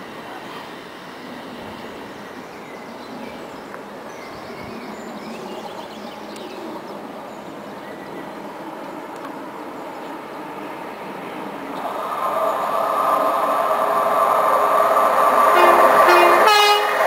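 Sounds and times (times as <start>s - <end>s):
train rumble: 6.7s - 17.0s.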